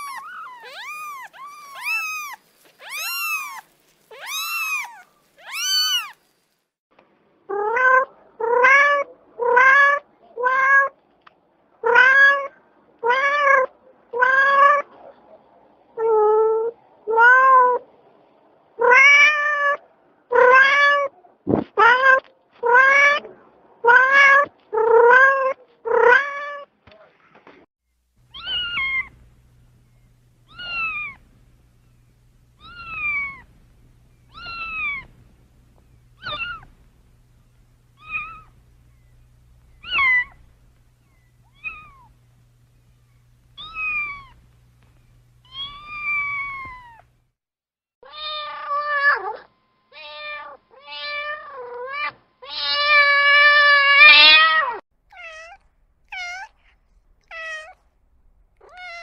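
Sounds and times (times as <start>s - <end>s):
cat meowing: 0.0s - 6.2s, 28.3s - 29.2s, 30.5s - 31.2s, 32.6s - 33.5s, 34.3s - 35.2s, 36.2s - 36.8s, 38.0s - 38.6s, 39.8s - 40.5s, 41.1s - 42.2s, 43.6s - 44.4s, 45.4s - 47.1s, 48.0s - 57.8s, 58.6s - 59.0s
faint low hum: 26.6s - 47.4s, 48.0s - 59.0s.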